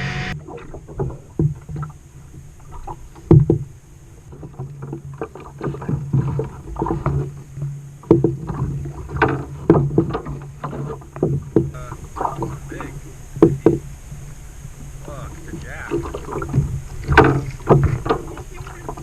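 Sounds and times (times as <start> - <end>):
low hum: 0.0 - 19.0
water splashing against boat hull: 0.0 - 19.0
knocks on boat hull: 3.2 - 3.7, 8.0 - 12.6, 15.9 - 19.0.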